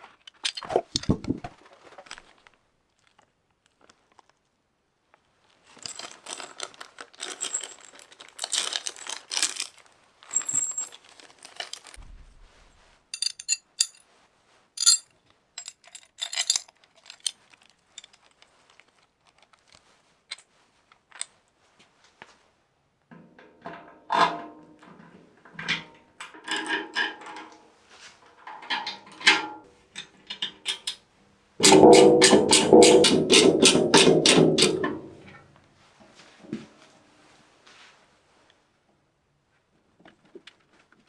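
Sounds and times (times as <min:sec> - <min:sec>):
rustling and crinkling: 0:05.7 - 0:14.0, 0:15.6 - 0:22.3.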